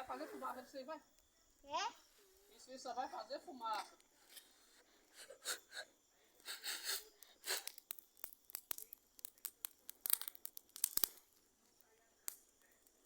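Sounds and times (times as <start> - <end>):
dry brush crackling and snapping: 7.6 - 11.5.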